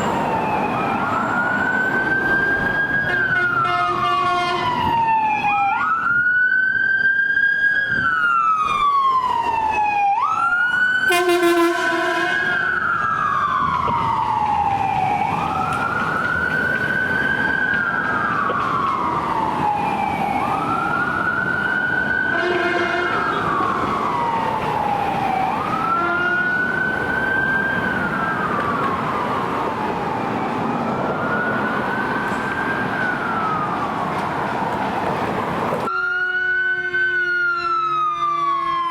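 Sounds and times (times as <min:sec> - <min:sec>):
electronic siren wailing: 0:07.6 - 0:34.7, 0:35.9 - 0:38.9
short horn blasts: 0:11.1 - 0:12.6, 0:22.4 - 0:23.2.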